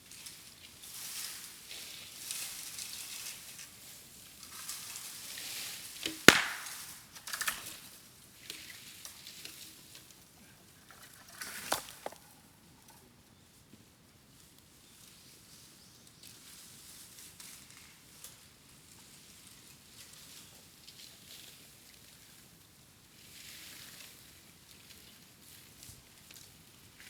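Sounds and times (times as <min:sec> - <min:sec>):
bamboo popping: 0:06.1 - 0:07.0, 0:11.4 - 0:12.3
bonfire crackling: 0:06.3 - 0:07.4.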